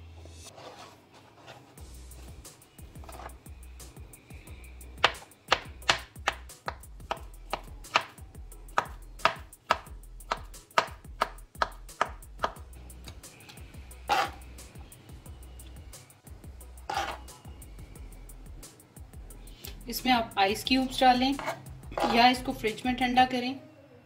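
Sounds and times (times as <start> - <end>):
knife chopping on plastic board: 5.0 - 12.6, 14.1 - 14.4, 16.9 - 17.2, 21.3 - 22.2.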